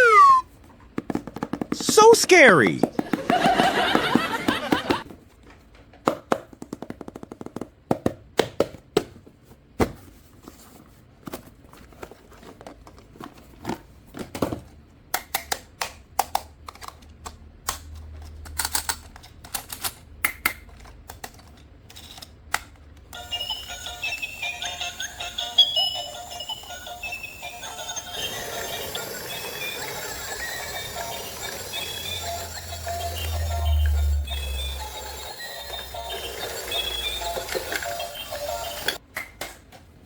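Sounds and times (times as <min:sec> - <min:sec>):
hard objects clicking and tapping: 0:00.9 - 0:01.9.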